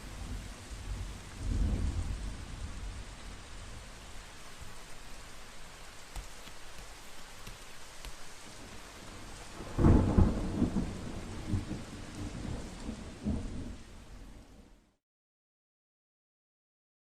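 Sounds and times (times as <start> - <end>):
rolling thunder: 0.0 - 4.0, 9.0 - 14.7
steady rainfall: 0.0 - 15.0.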